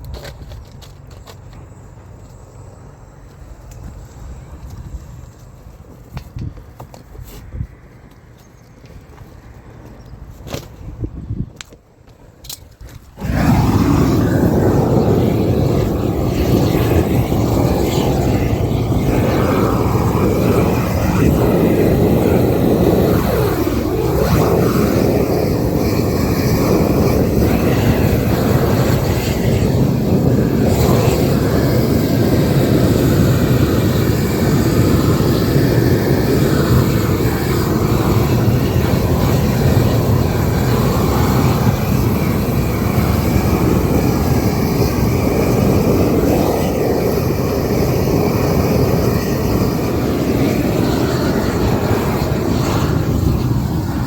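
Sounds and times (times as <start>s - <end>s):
gas torch roaring: 13.0s - 54.0s.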